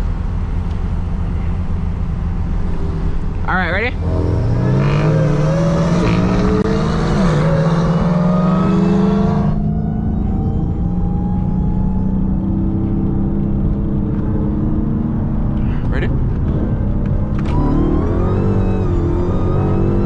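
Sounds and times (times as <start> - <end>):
car engine running at low revs: 0.0 - 20.0.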